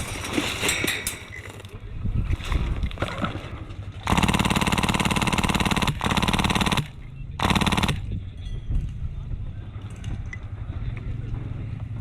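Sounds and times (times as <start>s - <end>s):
airsoft machine gun firing: 4.0s - 8.1s.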